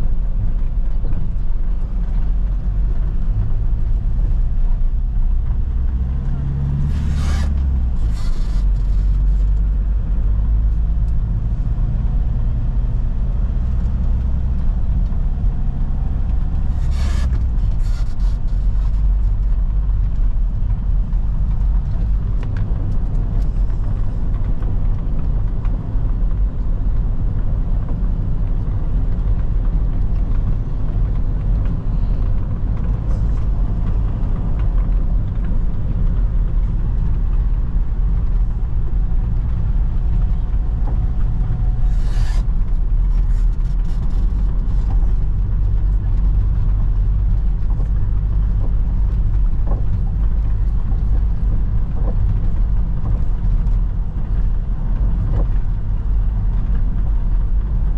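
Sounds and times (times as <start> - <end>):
vehicle engine and tyres rumbling: 0.0 - 57.9.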